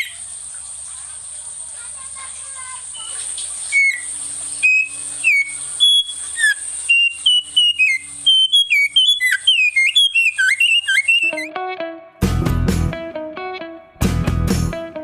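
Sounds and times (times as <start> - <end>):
steady high-pitched hiss: 0.0 - 11.5
songbird singing whistled notes: 3.0 - 11.5.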